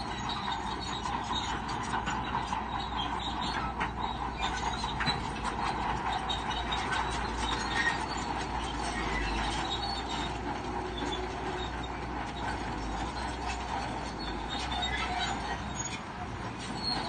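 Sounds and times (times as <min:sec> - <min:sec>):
diesel engine hum: 0:00.0 - 0:17.0
steel tracks clicking and squeaking: 0:00.0 - 0:17.0.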